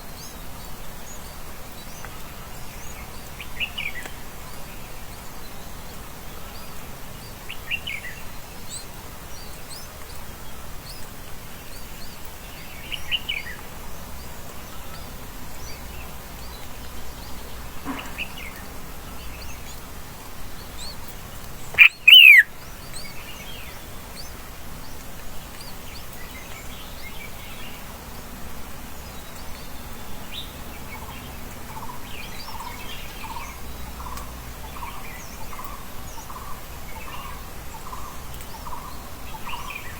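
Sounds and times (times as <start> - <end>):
wild birds chirping: 0.0 - 39.9
low repeated bird notes: 11.8 - 27.8
loud falling bird call: 21.7 - 22.5.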